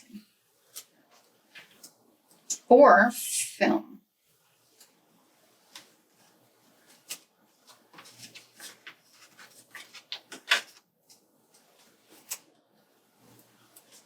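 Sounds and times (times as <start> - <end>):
paper rustling: 0.6 - 1.9, 4.6 - 14.0.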